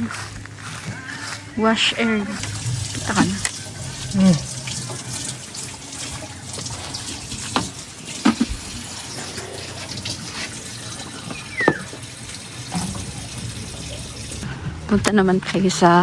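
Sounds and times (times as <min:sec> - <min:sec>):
tap running into sink: 0:02.4 - 0:08.7, 0:11.5 - 0:12.1, 0:12.7 - 0:14.4.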